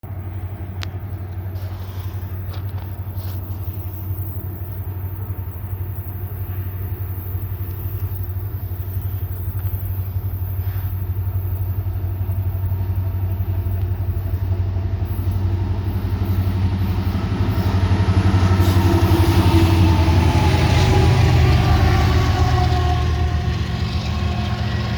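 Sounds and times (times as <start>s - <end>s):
diesel locomotive engine drone: 0.0s - 24.9s
rail noise: 0.0s - 24.9s.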